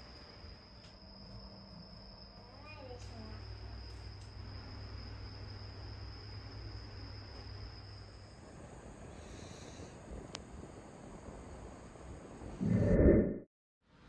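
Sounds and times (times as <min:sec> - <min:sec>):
high-pitched insect trill: 0:00.0 - 0:08.4
faint hiss: 0:02.4 - 0:12.9
low hum: 0:12.3 - 0:13.4.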